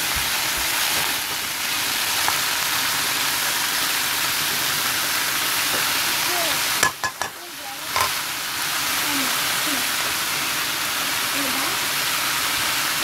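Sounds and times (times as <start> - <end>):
chickpeas sizzling in oil: 0.0 - 13.0
spoon stirring: 6.8 - 7.4, 8.0 - 8.2.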